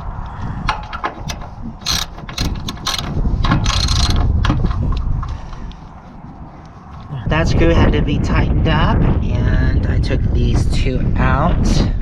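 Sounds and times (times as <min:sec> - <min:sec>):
wind buffeting microphone: 0:00.0 - 0:12.0
ratchet wrench clicking: 0:01.2 - 0:04.2.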